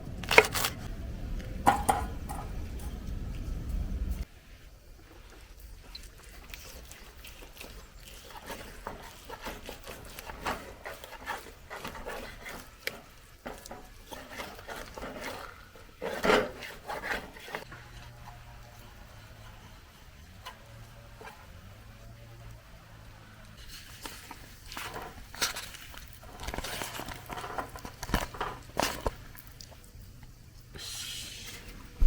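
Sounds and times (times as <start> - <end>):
faint low hum: 0.0 - 8.3.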